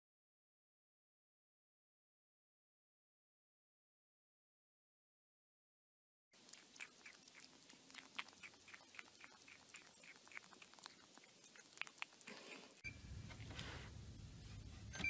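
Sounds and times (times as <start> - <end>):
kitten nibbling plastic bowl: 6.4 - 14.9
low hum: 12.8 - 15.0.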